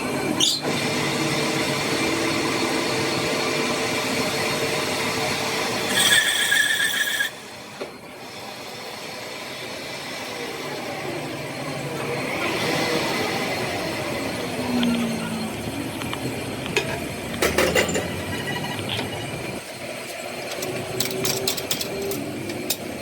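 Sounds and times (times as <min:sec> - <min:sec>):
workshop machinery running: 0:00.0 - 0:23.0
high metallic squeal: 0:05.9 - 0:07.5, 0:18.2 - 0:19.3.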